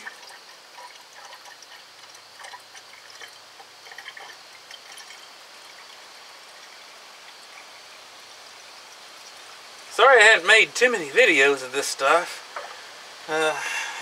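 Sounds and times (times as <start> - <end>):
small splashes: 0.0 - 9.9
liquid trickling: 0.0 - 13.4.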